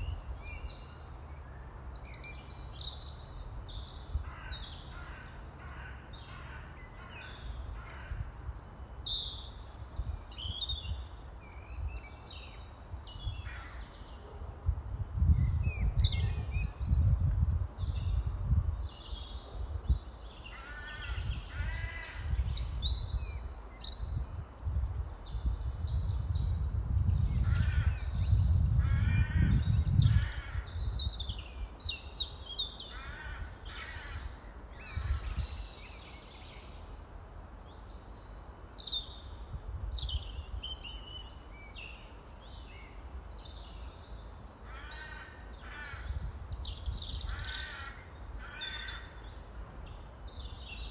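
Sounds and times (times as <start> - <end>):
birds chirping and calling: 26.8 - 38.1, 42.0 - 50.9.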